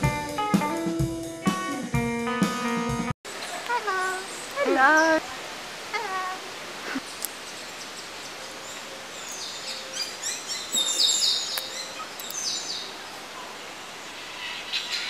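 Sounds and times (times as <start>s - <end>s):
birds chirping: 3.3s - 15.0s
outdoor hiss: 3.3s - 15.0s.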